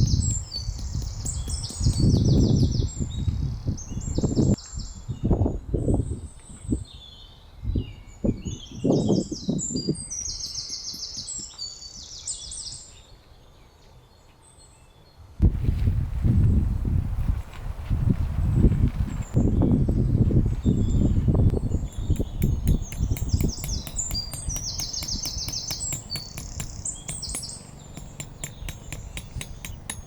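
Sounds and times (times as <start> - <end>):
songbirds chirping trills: 0.0 - 4.6, 6.8 - 15.3, 19.2 - 30.0.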